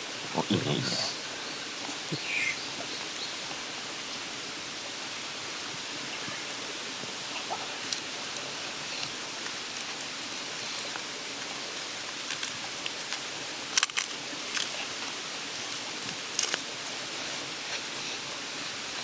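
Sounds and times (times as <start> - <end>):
mountain stream rushing: 0.0 - 19.0.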